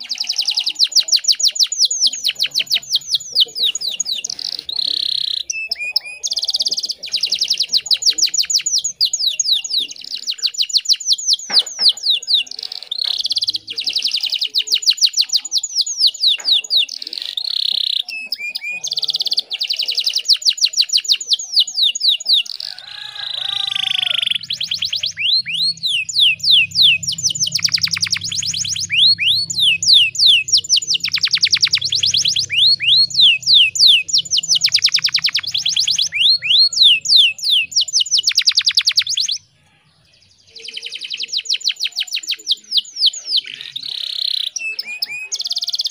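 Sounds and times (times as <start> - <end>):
canary singing trills: 0.0 - 45.9.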